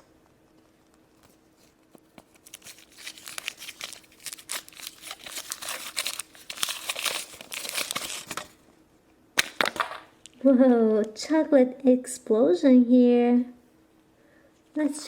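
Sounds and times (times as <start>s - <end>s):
wrapper crinkled and torn open: 2.2s - 8.6s.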